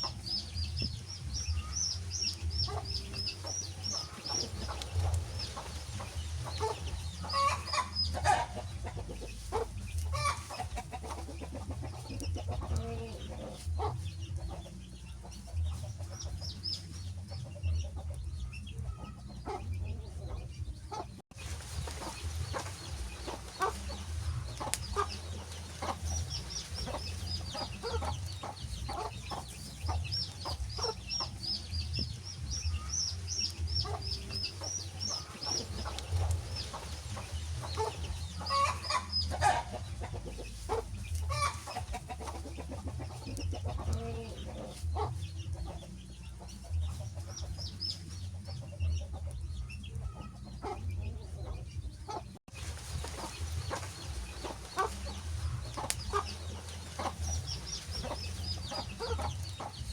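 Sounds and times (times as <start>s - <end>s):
wood fire crackling and popping: 35.9s - 36.8s.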